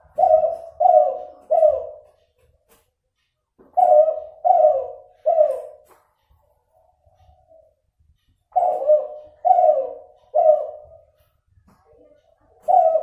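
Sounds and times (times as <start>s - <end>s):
dove cooing: 0.0s - 2.2s, 3.6s - 5.9s, 8.5s - 11.3s, 12.5s - 13.0s.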